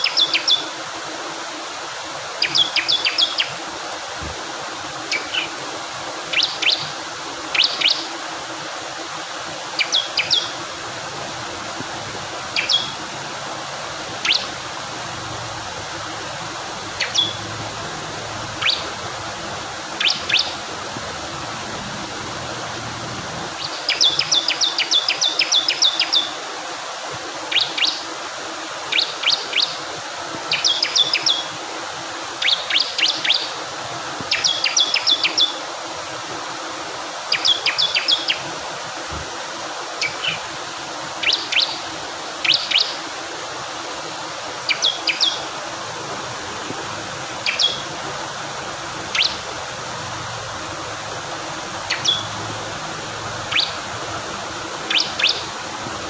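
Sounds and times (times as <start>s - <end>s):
flowing water: 0.0s - 56.0s
bird singing high chirps: 2.4s - 3.5s, 5.1s - 5.5s, 6.3s - 6.9s, 7.5s - 8.0s, 9.8s - 10.6s, 12.5s - 13.0s, 14.2s - 14.6s, 17.0s - 17.5s, 18.6s - 19.0s, 20.0s - 20.6s, 41.2s - 41.8s, 44.7s - 45.4s, 47.4s - 47.8s, 49.1s - 49.4s, 51.8s - 52.4s, 53.5s - 53.8s, 54.9s - 55.5s.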